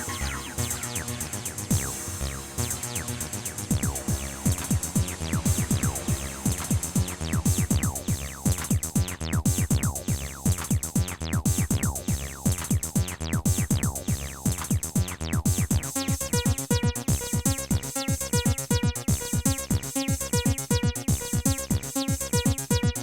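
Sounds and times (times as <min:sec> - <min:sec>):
drum machine beat: 0:00.0 - 0:02.1, 0:03.7 - 0:15.9
synth bass notes: 0:00.0 - 0:10.5.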